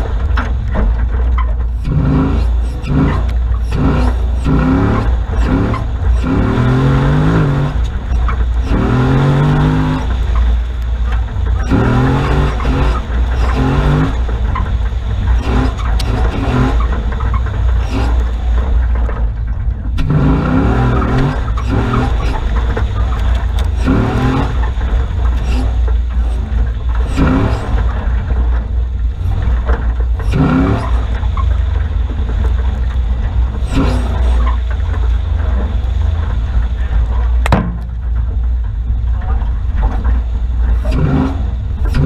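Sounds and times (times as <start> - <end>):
engine revving: 0.0 - 19.2, 19.9 - 38.1, 39.8 - 42.0
heavy low engine rumble: 0.0 - 42.0
sharp knock: 37.5 - 37.9.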